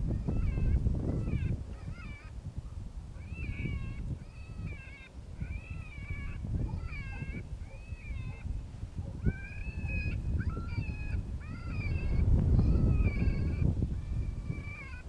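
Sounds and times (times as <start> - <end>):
wind rumble on microphone: 0.0 - 15.0
electronic rabbit distress call: 3.2 - 8.4.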